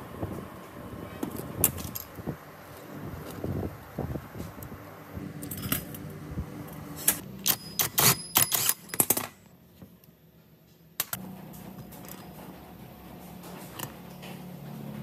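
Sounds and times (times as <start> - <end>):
metal parts clicking and clinking: 1.6 - 2.2, 5.4 - 6.0, 6.7 - 9.5.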